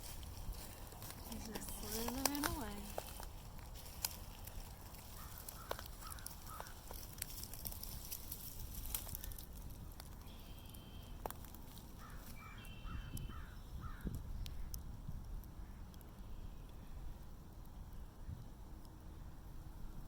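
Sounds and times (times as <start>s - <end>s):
faint clicks and rustling: 0.0s - 12.4s
short repeated bird calls: 10.2s - 11.2s, 12.0s - 13.7s.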